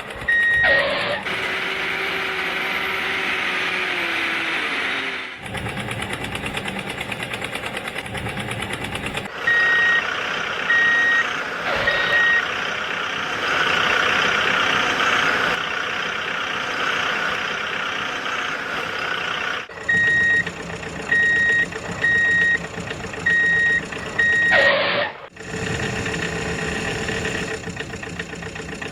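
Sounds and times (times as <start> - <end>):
engine running: 0.0 - 28.9
reversing alarm beeping: 0.2 - 1.2, 9.4 - 12.5, 19.8 - 25.1.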